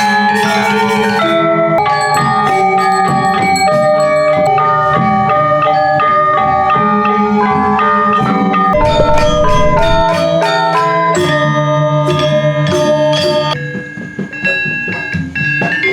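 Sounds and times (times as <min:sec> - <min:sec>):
held low tone: 0:08.8 - 0:10.2.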